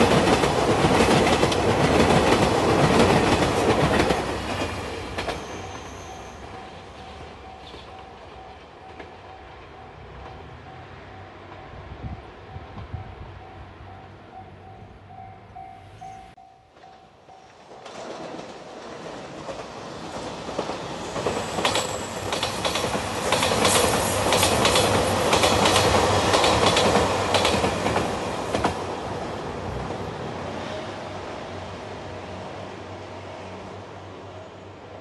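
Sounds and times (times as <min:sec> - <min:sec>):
train wheels clattering over joints: 0:19.4 - 0:28.8.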